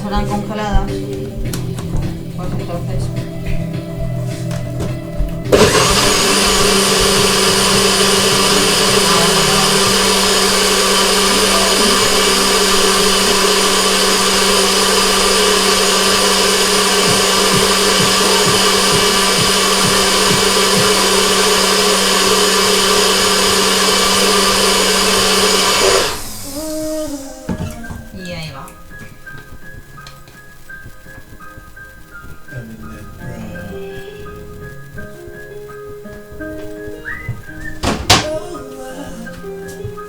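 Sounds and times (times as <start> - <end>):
electric blender crushing frozen berries: 4.7 - 28.0.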